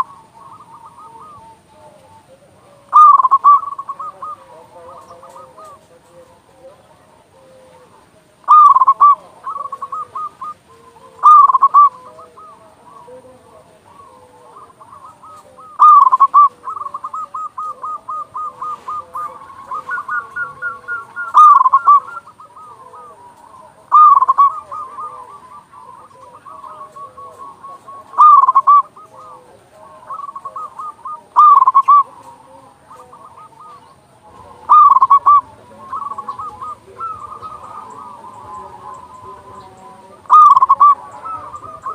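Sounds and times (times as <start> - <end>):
dove cooing: 0.0 - 41.9
soft trilling coos: 0.0 - 41.9.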